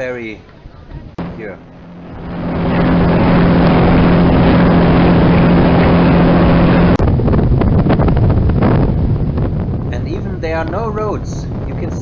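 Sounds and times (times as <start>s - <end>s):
wind buffeting microphone: 0.6s - 12.0s
boat engine droning: 1.2s - 10.7s.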